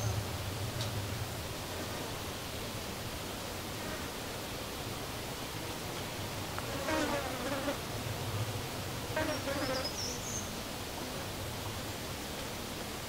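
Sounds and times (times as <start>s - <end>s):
outdoor hiss: 0.0s - 13.0s
flying insect buzzing: 6.6s - 7.8s, 9.1s - 9.9s.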